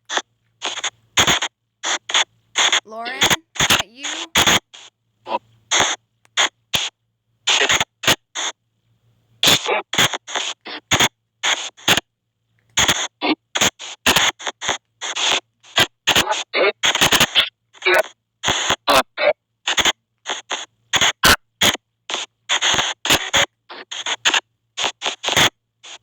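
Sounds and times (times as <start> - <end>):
bursts of static: 2.6 - 4.5.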